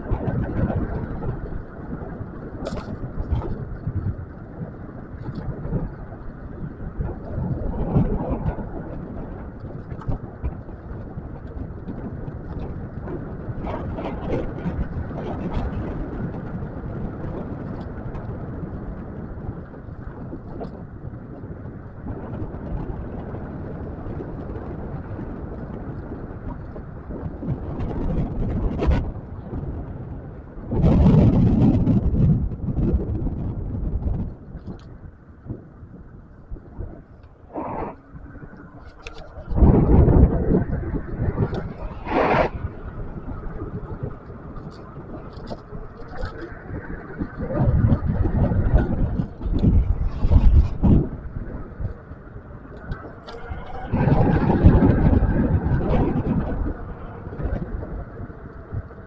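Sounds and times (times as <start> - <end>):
road rumble: 0.0 - 59.0
wind buffeting microphone: 0.0 - 59.0.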